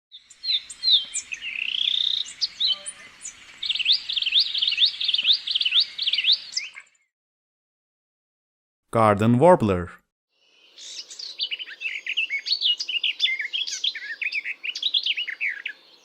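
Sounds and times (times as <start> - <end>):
bird singing: 0.1 - 7.1, 10.4 - 16.0.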